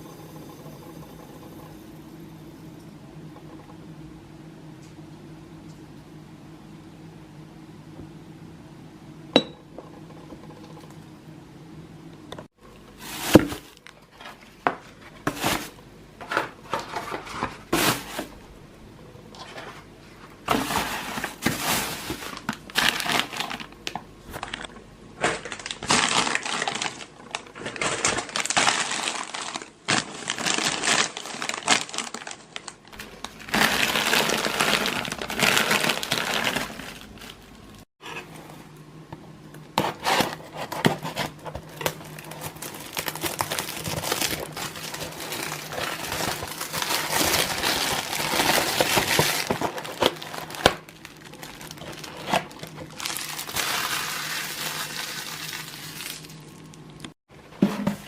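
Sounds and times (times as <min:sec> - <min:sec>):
plastic packaging crinkling: 0:20.5 - 0:37.9, 0:41.0 - 0:57.2.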